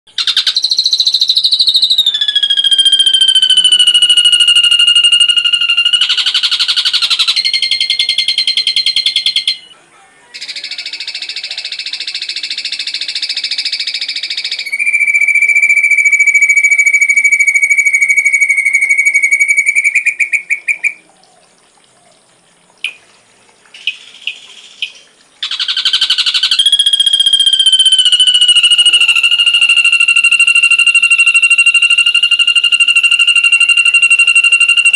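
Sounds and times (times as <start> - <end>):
bird whistling song: 0.1 - 9.8, 10.4 - 21.1, 23.8 - 34.9
buzzy bird trills: 0.1 - 9.8, 23.8 - 34.9.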